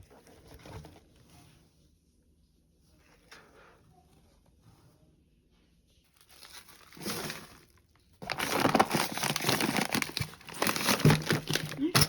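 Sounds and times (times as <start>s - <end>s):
plastic packaging crinkling: 6.2s - 12.0s.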